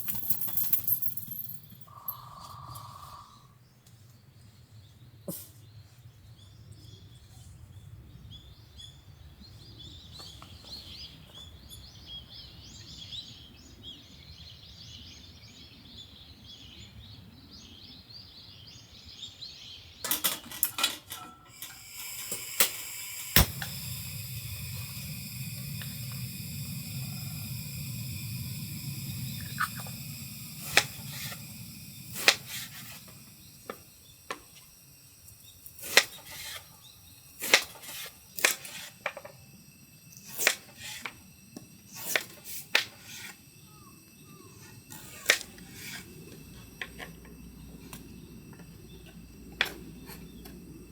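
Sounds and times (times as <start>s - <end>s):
sharp clicks and clinks: 0.0s - 2.2s, 20.1s - 34.6s
low outdoor hum: 0.0s - 50.9s
small birds chirping: 0.4s - 20.1s, 23.4s - 37.6s, 43.0s - 50.9s
utensils knocking and clinking: 20.1s - 22.6s
steady low rumble: 23.4s - 34.2s, 43.8s - 50.9s.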